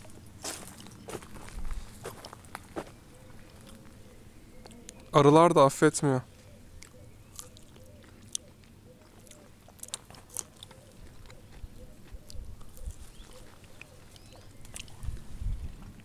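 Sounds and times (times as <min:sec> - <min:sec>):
person chewing fruit: 0:02.0 - 0:05.1, 0:06.7 - 0:16.0.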